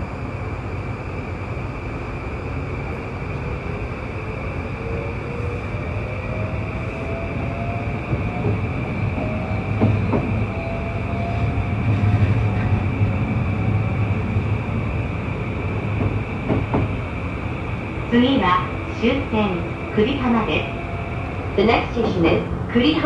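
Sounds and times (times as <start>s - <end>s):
train running rumble: 0.0s - 23.0s
traction motor whine: 3.0s - 22.2s
wheels knocking on rail joints: 16.0s - 17.0s.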